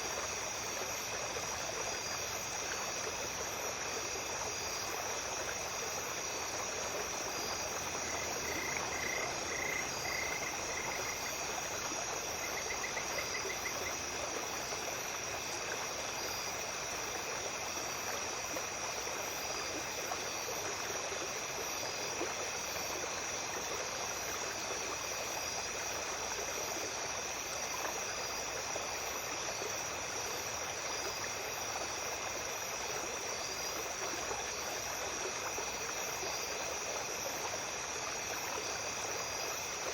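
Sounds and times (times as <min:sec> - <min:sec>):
small stream running: 0:00.0 - 0:39.9
insects trilling: 0:00.2 - 0:20.6.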